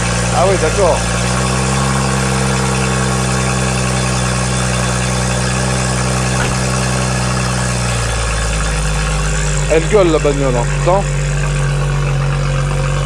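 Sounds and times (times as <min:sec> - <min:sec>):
car engine idling loudly: 0:00.0 - 0:13.0.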